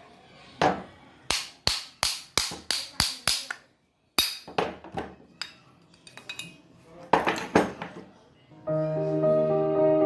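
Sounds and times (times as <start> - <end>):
hammer striking metal: 1.3 - 3.5, 4.2 - 4.6.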